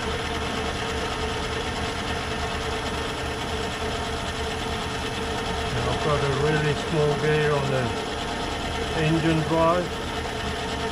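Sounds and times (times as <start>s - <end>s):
lathe running: 0.0s - 10.9s.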